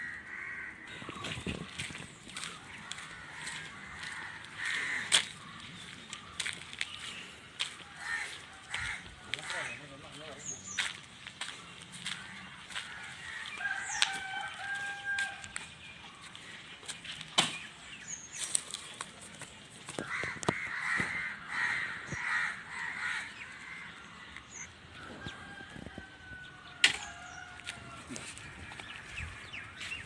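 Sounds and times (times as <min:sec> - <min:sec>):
rooster crowing: 0:12.7 - 0:15.6, 0:25.0 - 0:28.4.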